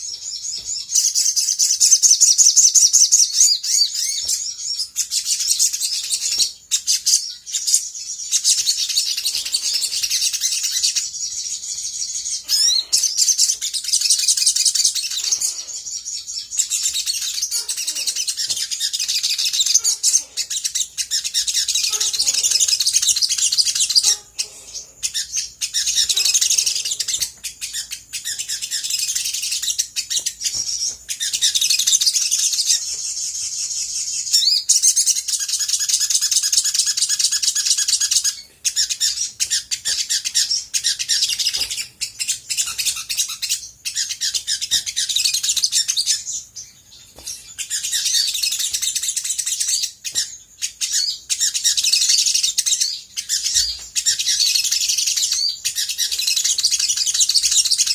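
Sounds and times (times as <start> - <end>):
sunbird chirps and trills: 0.0 - 57.9.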